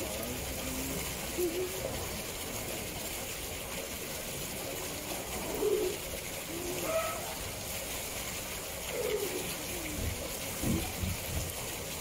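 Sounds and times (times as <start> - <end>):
low bird calls: 5.6 - 7.4.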